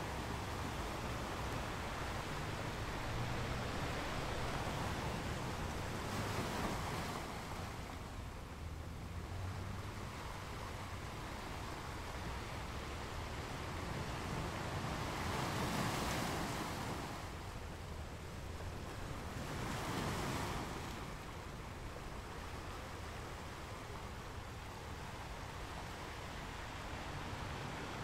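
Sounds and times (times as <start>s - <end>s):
sea wash: 0.0s - 28.0s
swells of rushing water: 0.0s - 28.0s.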